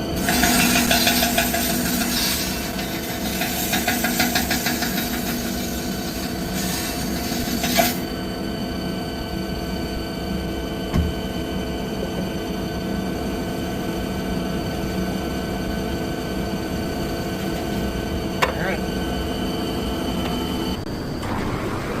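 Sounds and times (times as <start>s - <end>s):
machine hum: 0.0s - 22.0s
rasping chatter of metal cutting: 0.1s - 8.1s
knock: 10.9s - 11.2s.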